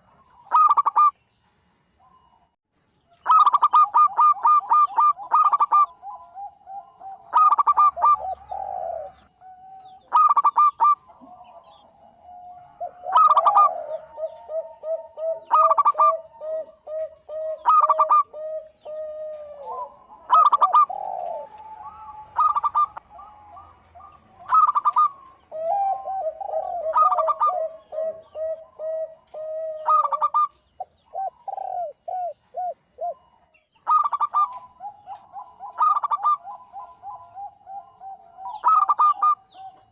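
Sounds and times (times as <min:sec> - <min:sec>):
doves cooing: 0:00.0 - 0:01.2, 0:03.2 - 0:39.9.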